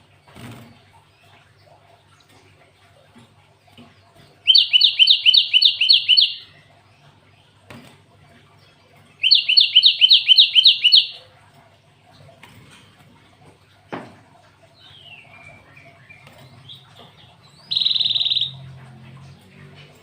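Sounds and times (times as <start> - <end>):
bird singing rapid rising notes: 4.4 - 6.5, 9.2 - 11.2, 14.9 - 20.0.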